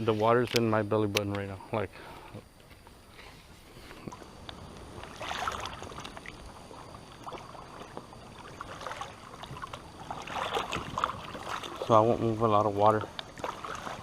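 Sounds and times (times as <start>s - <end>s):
water sloshing around wader: 3.1s - 14.0s
small water splashes: 4.1s - 14.0s.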